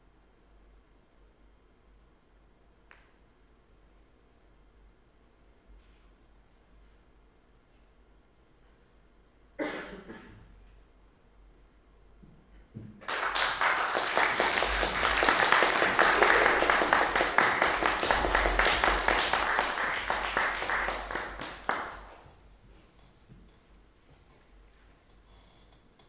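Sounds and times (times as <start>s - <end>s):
audience applauding: 13.0s - 22.3s.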